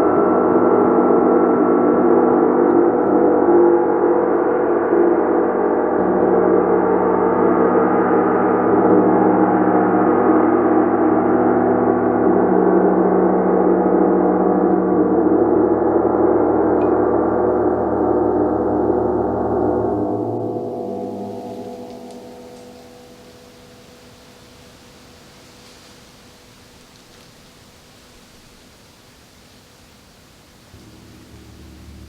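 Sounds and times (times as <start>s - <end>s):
gong ringing: 16.4s - 25.7s, 30.7s - 32.0s.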